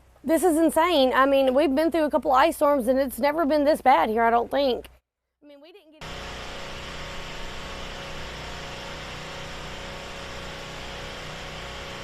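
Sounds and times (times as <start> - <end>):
engine running with hiss: 6.0 - 12.0.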